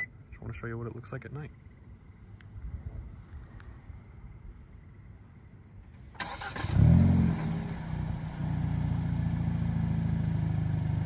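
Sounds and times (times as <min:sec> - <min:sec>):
car engine starting and idling: 0:05.8 - 0:11.0.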